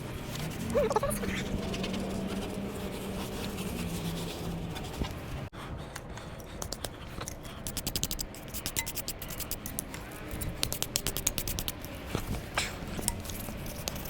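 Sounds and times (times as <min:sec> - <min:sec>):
rapid irregular scraping: 0:00.0 - 0:05.5.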